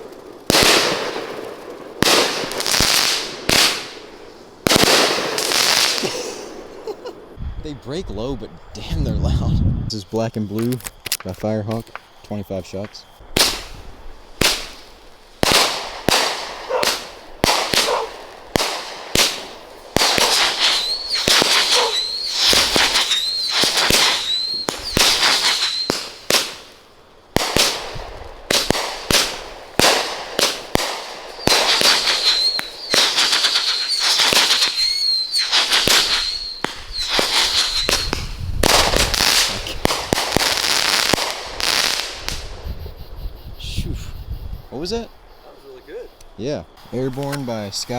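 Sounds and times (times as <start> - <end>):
firework bangs and crackling: 0.0 - 7.4, 10.1 - 43.0.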